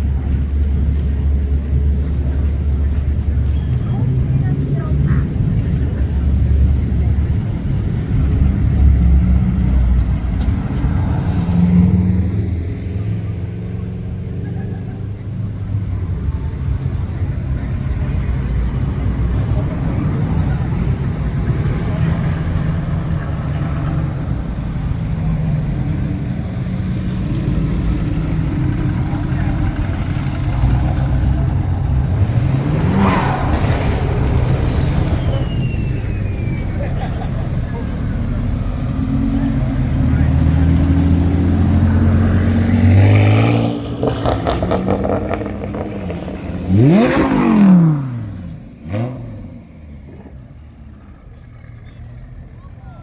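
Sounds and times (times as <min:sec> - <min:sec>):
car engine running: 0:00.0 - 0:53.0
clatter: 0:26.8 - 0:49.4.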